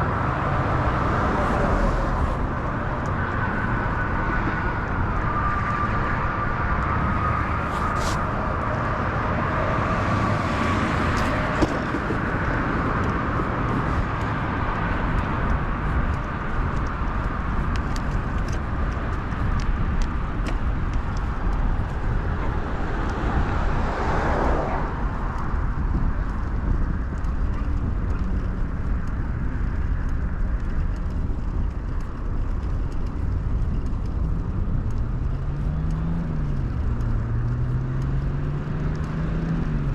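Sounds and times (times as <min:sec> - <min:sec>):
bike tyre noise on road: 0:00.0 - 0:39.9
wind rumble: 0:00.0 - 0:39.9
motor vehicle passing by: 0:05.6 - 0:15.2.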